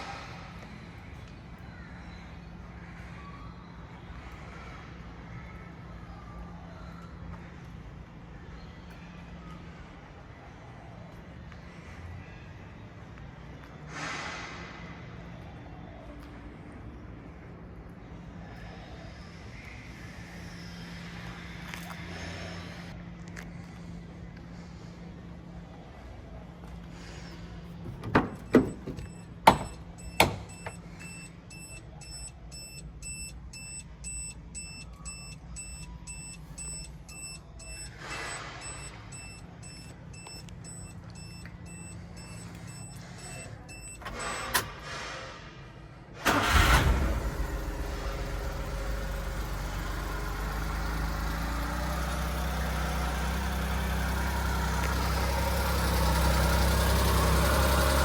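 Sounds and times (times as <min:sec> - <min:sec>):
engine idling: 0:26.5 - 0:45.2, 0:46.2 - 0:58.0
engine cranking and catching: 0:27.6 - 0:31.6, 0:46.2 - 0:58.0
high electronic beep: 0:28.6 - 0:44.0.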